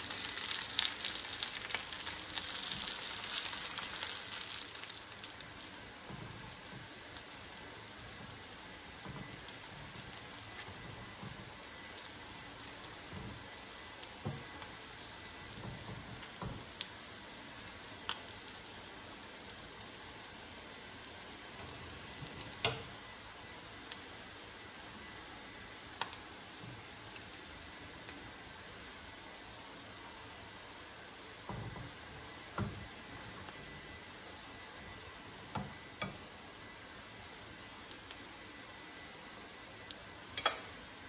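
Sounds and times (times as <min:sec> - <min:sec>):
food sizzling in frying pan: 0:00.0 - 0:41.0
tongs clicking against pan: 0:40.4 - 0:40.7.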